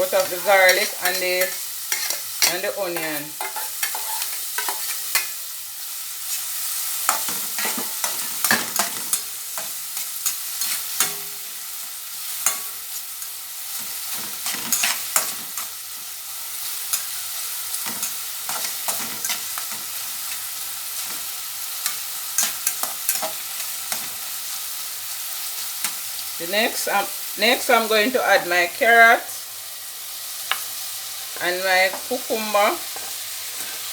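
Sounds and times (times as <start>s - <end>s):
utensil scraping a pot: 0.0s - 5.2s
onion and garlic sizzling in oil: 0.0s - 33.9s.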